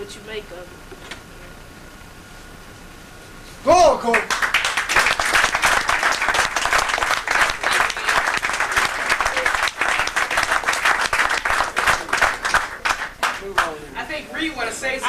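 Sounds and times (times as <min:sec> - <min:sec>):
crowd applauding: 0:04.0 - 0:13.9
voices: 0:07.3 - 0:10.6.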